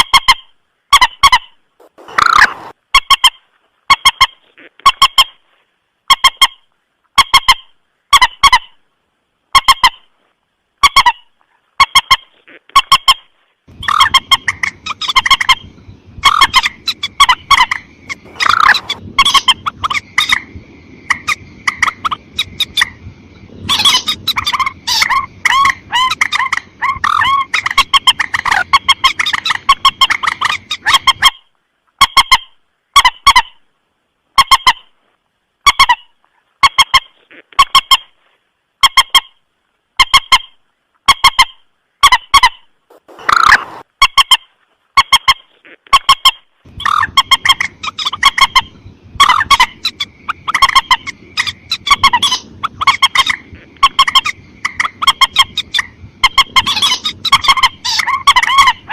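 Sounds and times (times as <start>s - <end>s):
background noise: 0.0s - 58.9s
bird calling: 1.0s - 5.4s, 10.9s - 31.4s, 42.1s - 44.4s, 46.1s - 58.9s.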